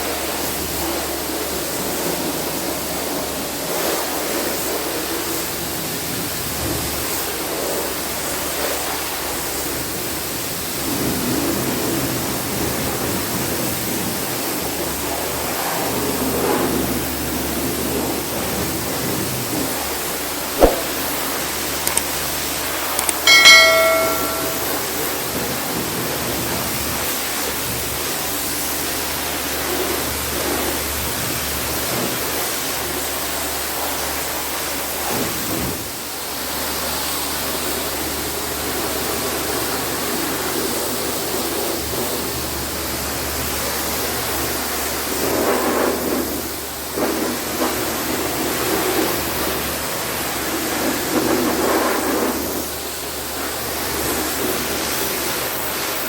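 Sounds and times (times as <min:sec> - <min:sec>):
metallic ring: 0:20.6 - 0:21.0, 0:23.0 - 0:24.9.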